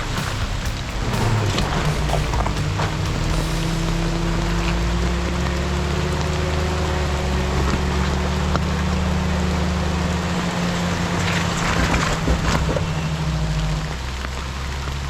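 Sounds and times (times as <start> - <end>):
steady hiss: 0.0 - 5.0
off-road vehicle engine running: 0.0 - 15.0.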